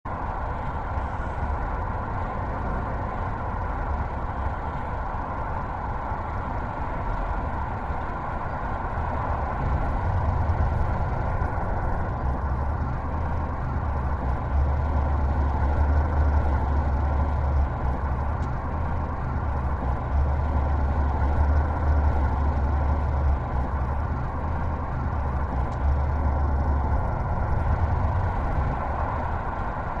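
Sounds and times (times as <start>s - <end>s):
truck engine under load: 0.1s - 30.0s.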